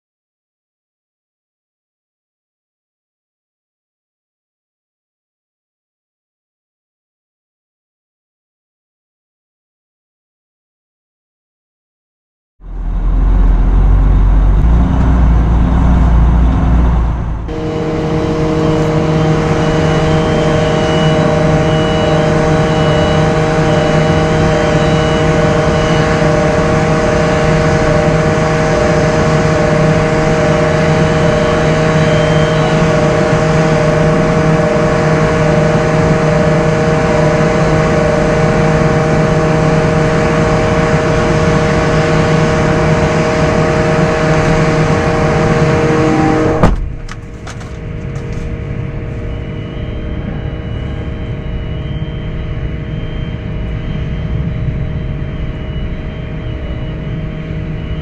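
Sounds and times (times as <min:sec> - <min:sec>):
truck engine rumble: 0:12.6 - 0:52.0
steady engine drone: 0:12.6 - 0:58.0.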